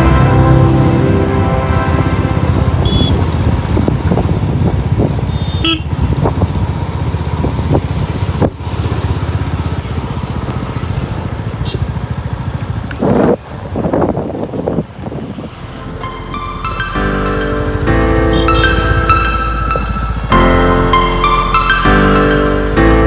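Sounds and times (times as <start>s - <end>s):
vehicle horn toots: 0.0s - 4.4s, 5.2s - 6.2s, 11.6s - 12.0s, 18.0s - 20.4s
wind rumble: 0.0s - 11.5s
motorcycle engine: 0.0s - 23.0s.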